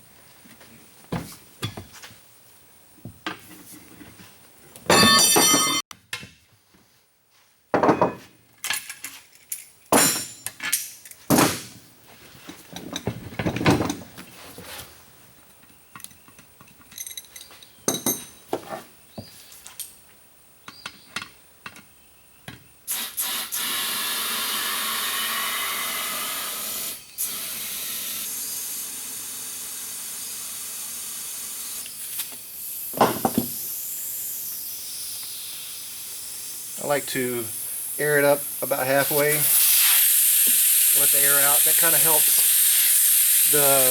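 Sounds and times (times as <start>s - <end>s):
knocks and clanks of tire work: 4.8s - 6.4s, 7.8s - 8.4s, 9.9s - 10.6s, 11.3s - 11.9s, 12.5s - 14.3s, 33.0s - 33.6s
compressed air hissing: 22.9s - 43.9s.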